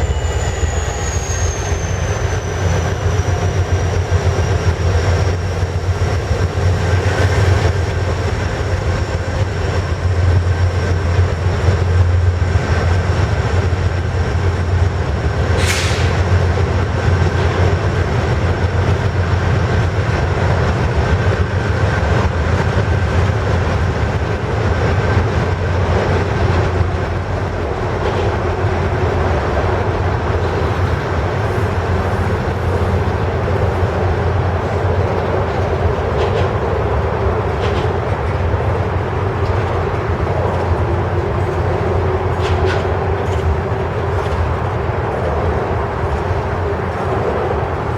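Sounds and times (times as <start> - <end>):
high-pitched screech: 0.0 - 3.3
train wheels rumbling on rail: 0.0 - 47.9.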